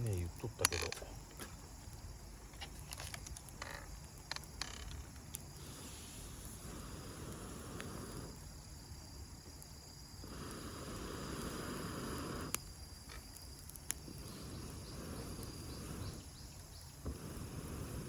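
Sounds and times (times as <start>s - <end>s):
campfire crackling pops: 0.0s - 18.0s
crickets chirring: 0.0s - 18.0s
rushing of air: 5.6s - 8.4s, 10.2s - 12.6s, 17.0s - 18.0s.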